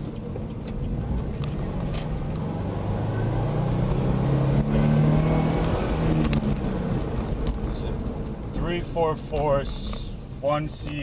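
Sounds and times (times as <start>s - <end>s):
car engine accelerating: 0.0s - 10.4s
low road rumble: 0.0s - 11.0s.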